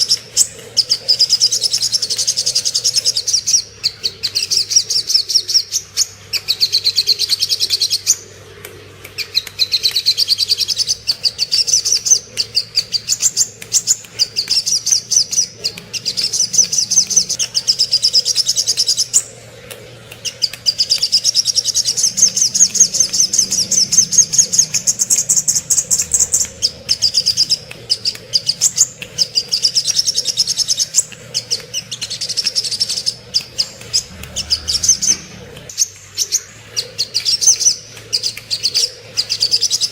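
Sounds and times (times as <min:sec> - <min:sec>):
sunbird singing high trills: 0:20.2 - 0:39.9.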